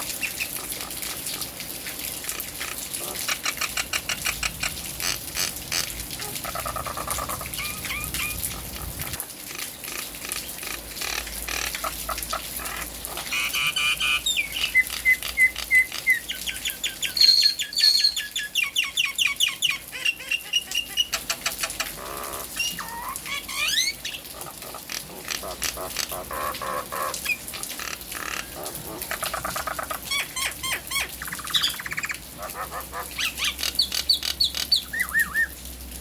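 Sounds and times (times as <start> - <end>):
rain hissing: 0.0 - 18.4.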